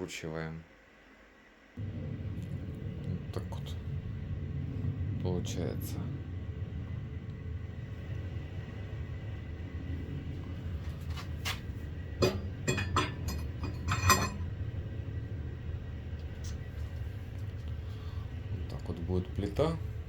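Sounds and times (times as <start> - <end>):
low workshop hum: 0.0 - 20.0
metal tools clanking: 12.2 - 14.4.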